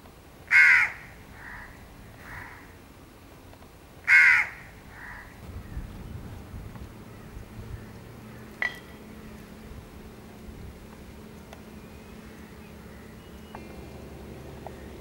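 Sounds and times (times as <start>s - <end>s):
bird cawing: 0.5s - 2.8s, 4.0s - 5.8s, 7.1s - 9.5s.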